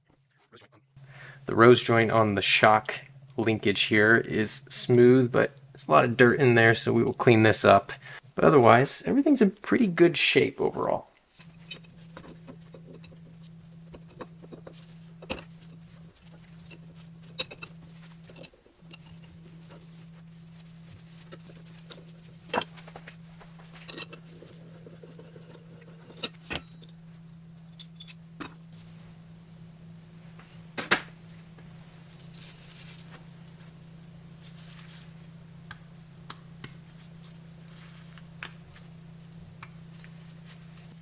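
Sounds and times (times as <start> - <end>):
steady low hum: 0.0 - 41.0
metal tools clinking: 16.6 - 19.4, 23.8 - 24.3, 27.7 - 28.2.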